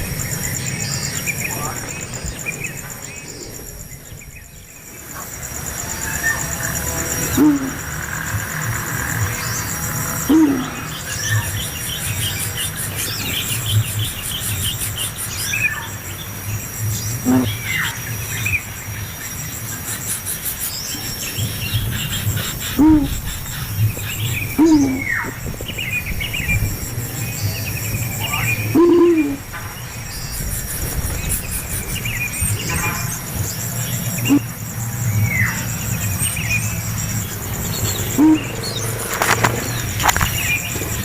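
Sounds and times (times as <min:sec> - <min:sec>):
insects chirping: 0:00.0 - 0:41.0
downward-sliding bird calls: 0:21.5 - 0:25.4, 0:37.7 - 0:41.0.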